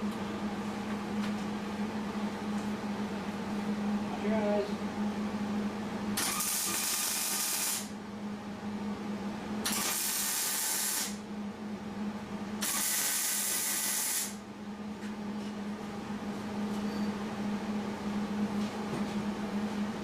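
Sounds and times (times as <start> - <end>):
steady low hum: 0.0 - 20.0
welder arc sizzling: 6.2 - 7.9, 9.7 - 11.2, 12.6 - 14.4.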